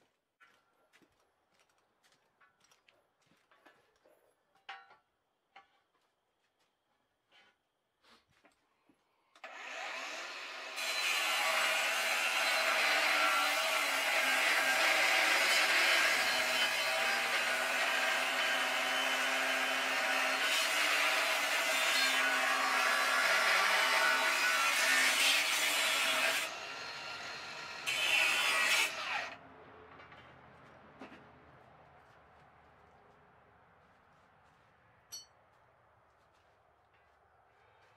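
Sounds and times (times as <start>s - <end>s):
electric saw cutting wood: 9.4s - 29.4s.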